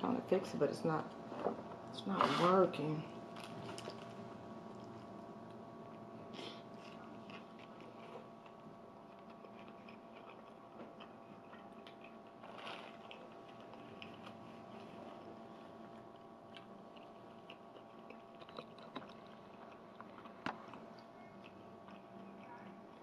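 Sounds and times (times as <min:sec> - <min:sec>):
faint steady hum: 0:00.0 - 0:23.0
wet chewing and mouth smacks: 0:06.7 - 0:23.0.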